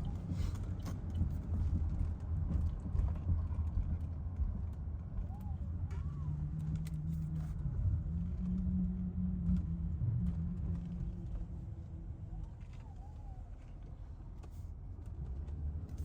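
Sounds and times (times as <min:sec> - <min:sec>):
car engine rumbling: 0:05.2 - 0:16.0.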